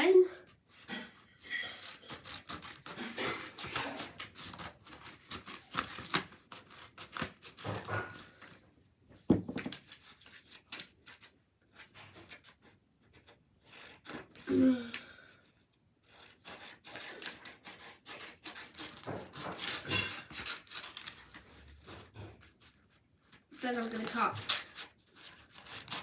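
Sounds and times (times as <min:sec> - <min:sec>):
paper rustling: 0:01.8 - 0:08.6, 0:16.0 - 0:26.0
scissors snipping paper: 0:01.8 - 0:08.6, 0:09.7 - 0:15.2, 0:16.0 - 0:26.0.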